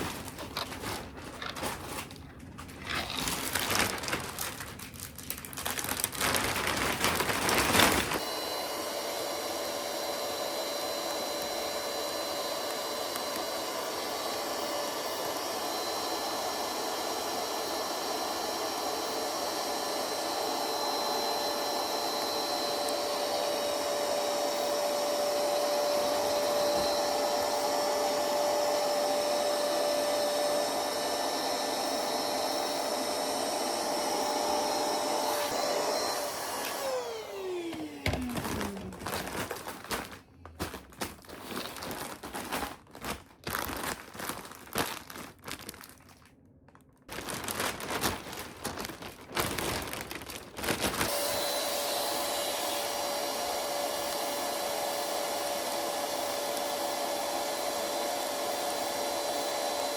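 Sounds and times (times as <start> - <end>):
appliance fan motor whining: 5.9 - 39.7, 50.9 - 59.9.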